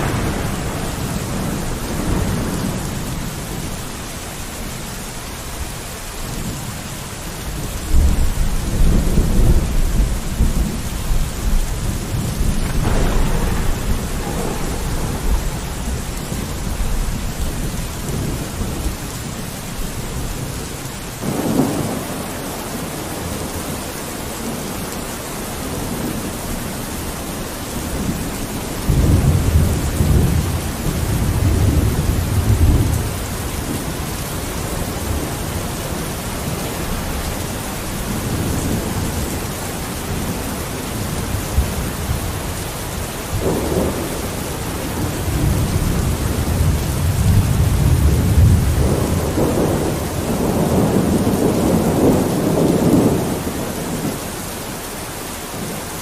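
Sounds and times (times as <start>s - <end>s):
thunder rumbling: 0.0s - 54.9s
rain on a window: 0.0s - 56.0s.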